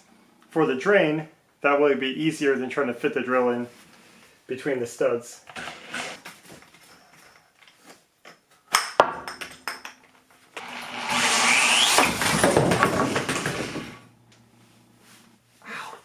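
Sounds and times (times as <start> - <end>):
power drill boring wood: 5.5 - 6.2, 10.6 - 14.0.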